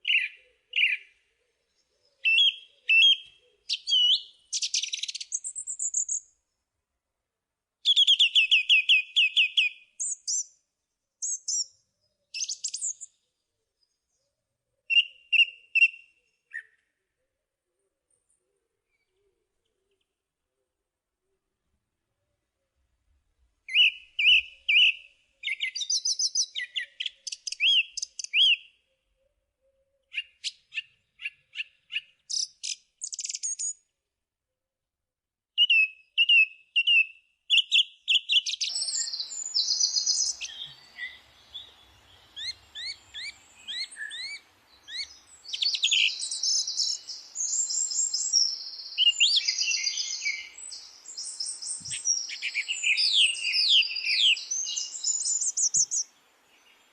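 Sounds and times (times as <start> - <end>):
songbirds singing: 0.0 - 6.7, 7.8 - 17.0, 23.7 - 33.9, 35.6 - 56.9
faint steady hiss: 39.1 - 53.0, 54.2 - 56.9.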